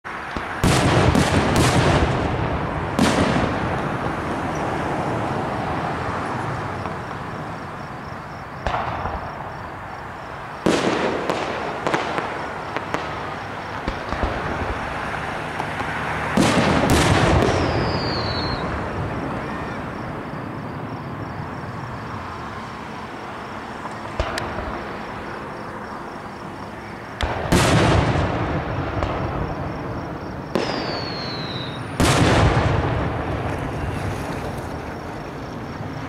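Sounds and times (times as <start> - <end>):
firework shells bursting: 27.2 - 33.9.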